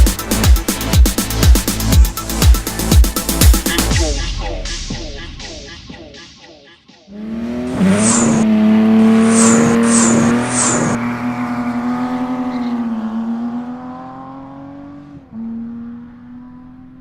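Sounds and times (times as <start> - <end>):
car engine at high revs: 7.1 - 17.0.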